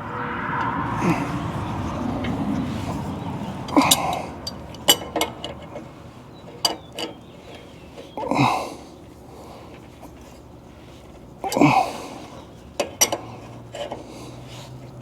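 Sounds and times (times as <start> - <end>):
rasping sounds dropping in pitch: 0.0 - 4.8.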